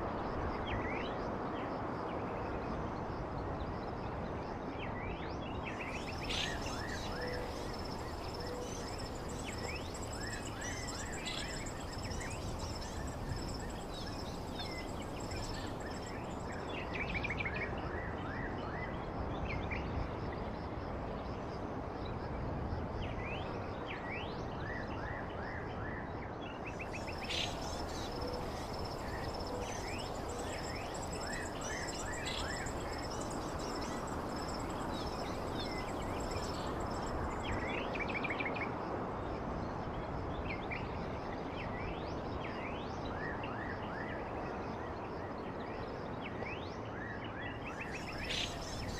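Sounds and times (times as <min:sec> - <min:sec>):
small birds chirping: 0:05.7 - 0:17.0, 0:26.7 - 0:38.0, 0:47.8 - 0:48.9
steady hiss: 0:26.9 - 0:37.5.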